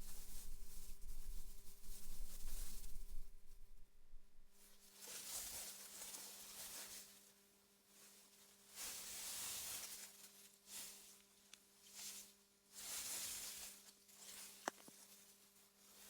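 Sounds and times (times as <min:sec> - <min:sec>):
faint low hum: 0:00.0 - 0:04.8.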